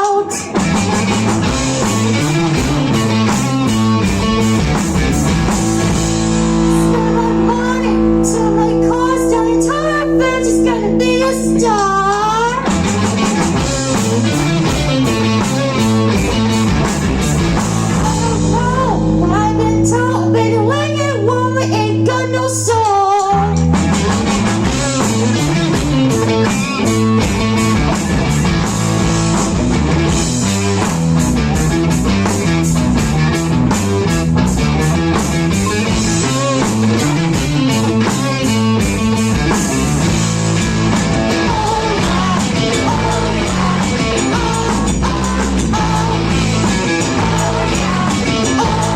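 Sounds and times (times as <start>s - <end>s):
drum kit: 0.0s - 20.6s, 22.6s - 48.9s
rock band playing live: 0.0s - 48.9s
person singing: 6.7s - 16.6s, 17.9s - 23.6s, 41.3s - 48.9s.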